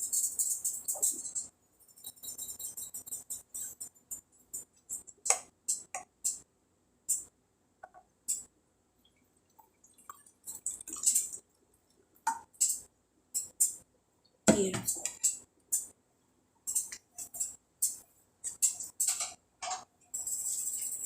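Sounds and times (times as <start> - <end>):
kitchenware clinking: 16.7 - 21.0.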